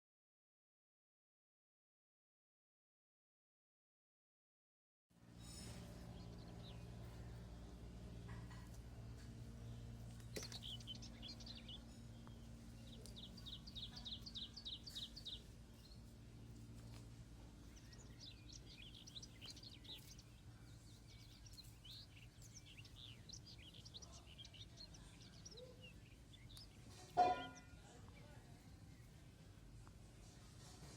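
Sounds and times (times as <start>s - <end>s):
sparrow chirping: 5.4s - 29.4s.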